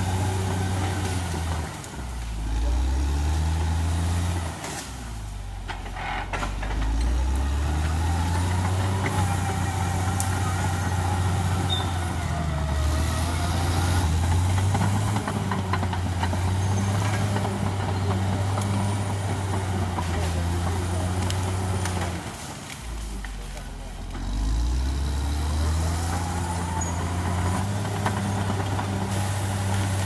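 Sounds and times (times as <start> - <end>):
bulldozer diesel engine under load: 0.0 - 30.0.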